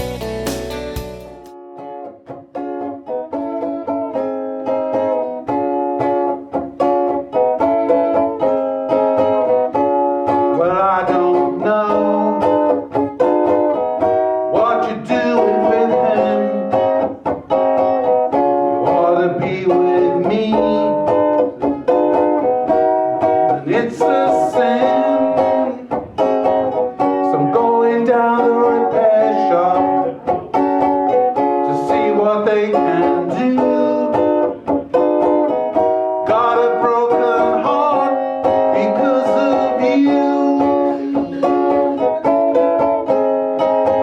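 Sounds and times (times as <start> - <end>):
plucked string instrument: 0.0 - 44.0
person singing: 10.3 - 13.6, 14.3 - 17.1, 18.4 - 43.2.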